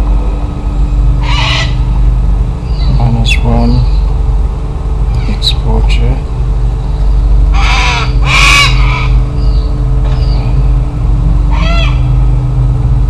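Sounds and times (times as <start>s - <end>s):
low engine hum: 0.0s - 13.0s
cockatoos screeching: 1.2s - 1.9s, 6.9s - 10.6s, 11.4s - 12.2s.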